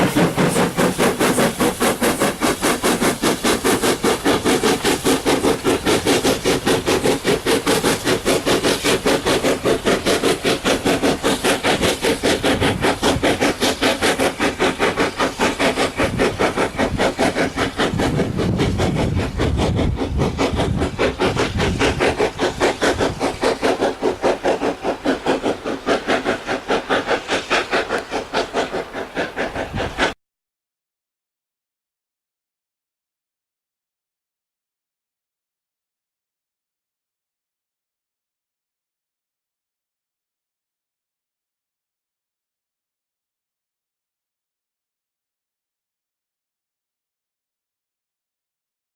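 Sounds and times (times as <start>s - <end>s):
steam locomotive chuffing: 0.0s - 30.2s.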